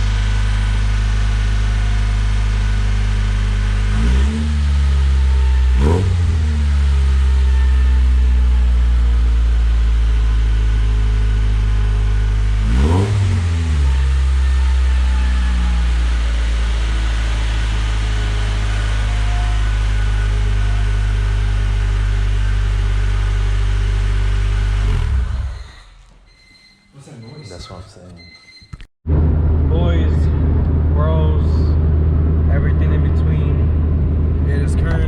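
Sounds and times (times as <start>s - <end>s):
car engine idling: 0.0s - 25.8s, 29.1s - 35.0s
engine revving: 0.0s - 26.0s.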